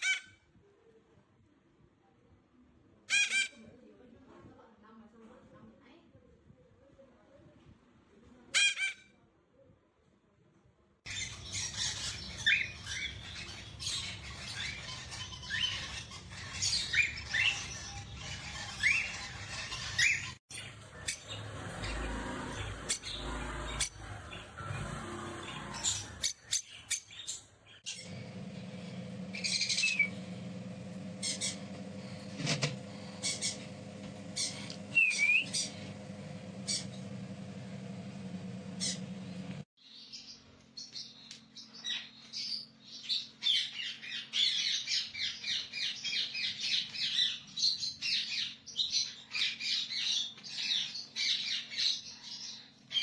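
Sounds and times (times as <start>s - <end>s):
parrots chirping and squawking: 0.0s - 0.4s, 3.1s - 3.6s, 8.6s - 9.0s, 11.1s - 39.2s
background hum: 27.9s - 47.4s.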